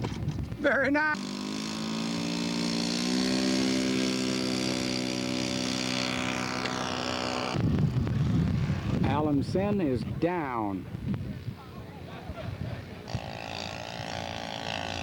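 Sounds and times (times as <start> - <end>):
model airplane engine running: 1.1 - 9.3, 11.4 - 15.0.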